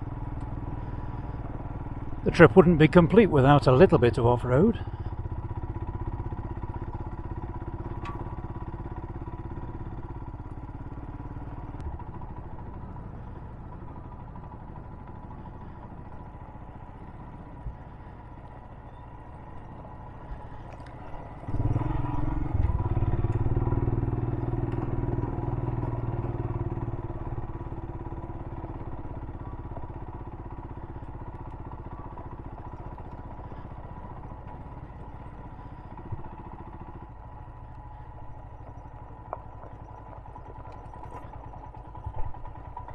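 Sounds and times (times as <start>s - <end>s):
motorcycle engine running: 0.0s - 42.9s
faint ticks: 37.6s - 42.9s.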